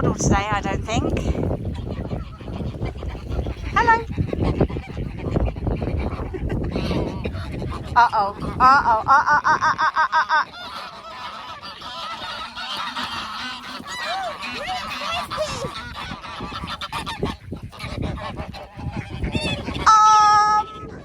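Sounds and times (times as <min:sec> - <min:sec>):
geese honking: 0:00.1 - 0:21.0
scuffling noises: 0:10.6 - 0:15.8.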